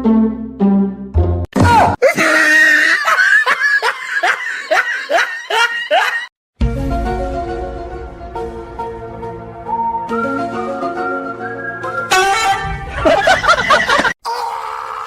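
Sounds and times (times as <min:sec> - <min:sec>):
background music: 0:00.0 - 0:01.5, 0:06.6 - 0:14.0
loud laughing bursts: 0:02.0 - 0:06.3, 0:13.0 - 0:14.6.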